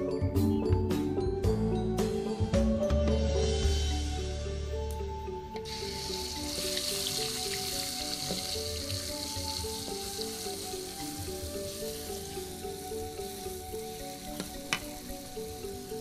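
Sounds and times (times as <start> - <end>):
background music simple melody: 0.0 - 16.0
spice paste sizzling in oil: 5.6 - 16.0.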